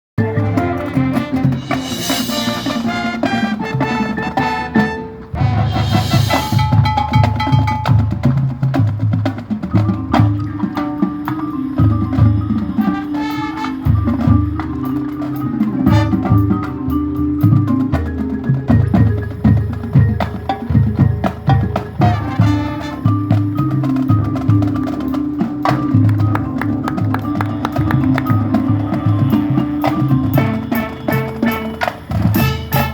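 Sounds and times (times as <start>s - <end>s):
band playing: 0.2s - 32.9s
cymbal crashes: 1.6s - 3.1s, 5.4s - 7.2s.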